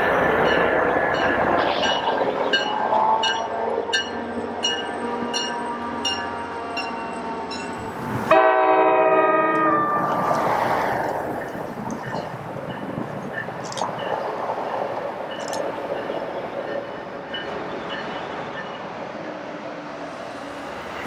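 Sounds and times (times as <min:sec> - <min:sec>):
train rolling by: 0:00.0 - 0:21.0
train horn chord: 0:08.3 - 0:10.2.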